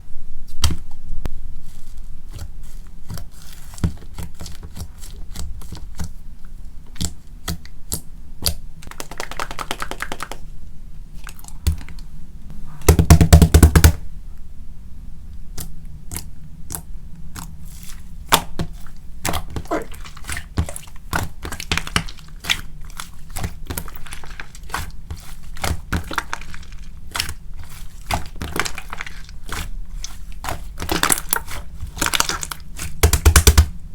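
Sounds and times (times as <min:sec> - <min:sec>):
slime squished by hand: 0:15.5 - 0:33.8
dense squelch: 0:17.4 - 0:33.0.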